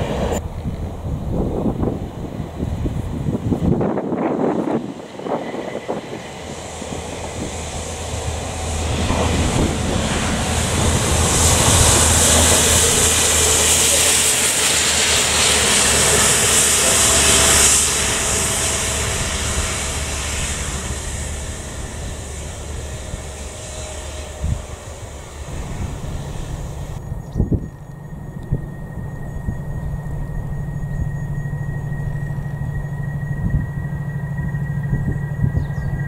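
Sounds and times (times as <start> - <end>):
diesel engine drone: 0.0 - 36.0
high-pressure water jets hissing: 3.8 - 27.0.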